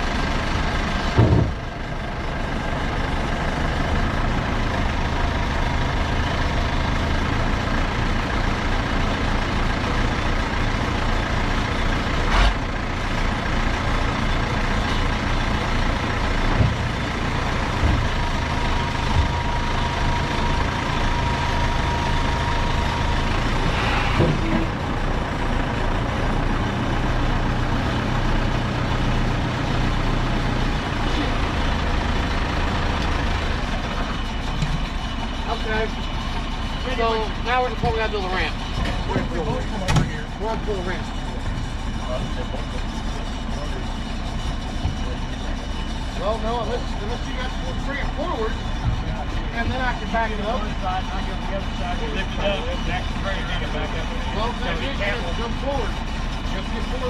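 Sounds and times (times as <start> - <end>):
heavy diesel engine running: 0.0 - 57.0
metal clunks: 1.1 - 1.7, 38.8 - 40.2.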